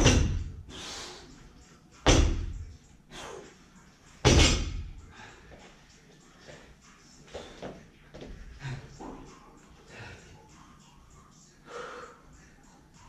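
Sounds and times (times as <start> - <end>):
barbell thudding on wooden floor: 2.1 - 2.6, 4.3 - 4.9.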